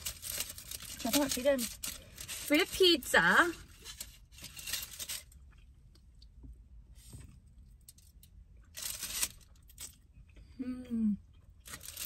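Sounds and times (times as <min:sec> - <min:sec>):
food packaging rustling: 0:00.0 - 0:05.6, 0:07.8 - 0:10.0, 0:11.6 - 0:12.0.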